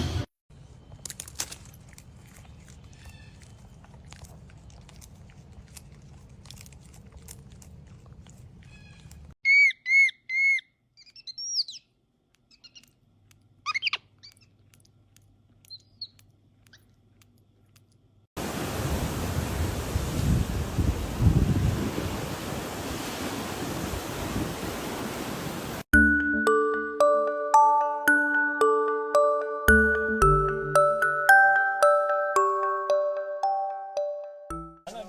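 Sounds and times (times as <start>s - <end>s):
bird chirping: 8.6s - 13.0s, 13.6s - 14.6s, 15.6s - 16.9s
wind noise rushing: 18.7s - 25.8s.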